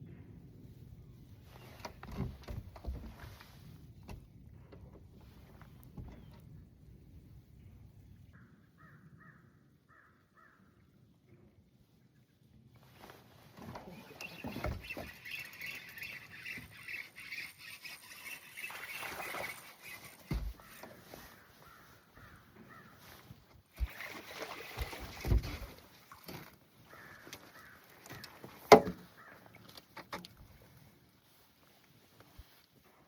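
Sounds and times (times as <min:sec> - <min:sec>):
birds calling: 0:13.6 - 0:24.1, 0:26.7 - 0:29.7.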